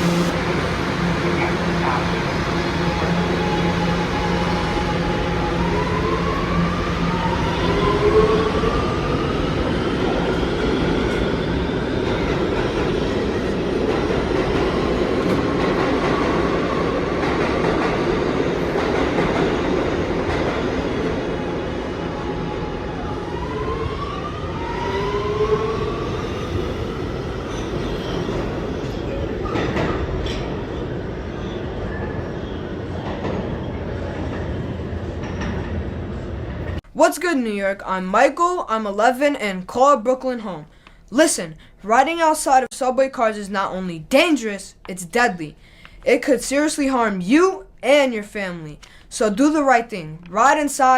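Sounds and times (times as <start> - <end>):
electric motor whine rising: 0.0 - 0.8
train wheels rumbling on rail: 0.0 - 23.0
subway motors whining: 0.0 - 36.8.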